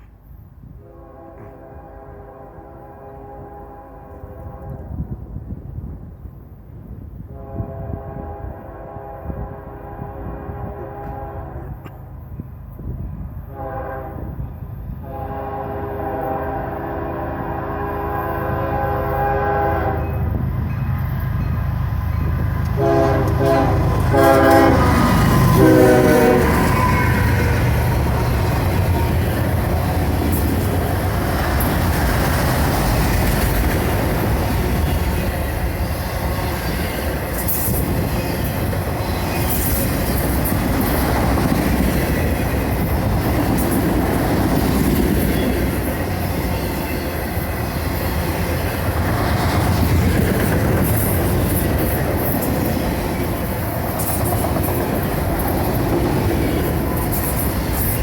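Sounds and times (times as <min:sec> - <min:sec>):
freight train wheels clattering: 0:20.3 - 0:58.0.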